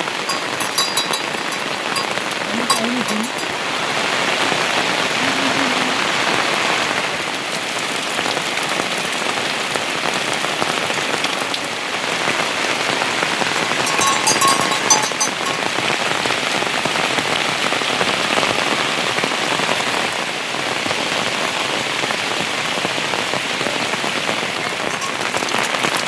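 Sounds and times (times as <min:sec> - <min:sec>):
heavy rain hissing: 0:01.3 - 0:13.9.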